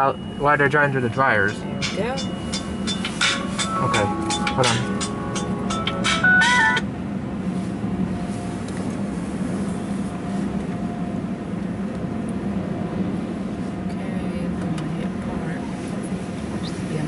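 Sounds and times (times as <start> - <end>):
electronic chime: 0.0 - 6.8
car wash machinery hum: 0.0 - 17.0.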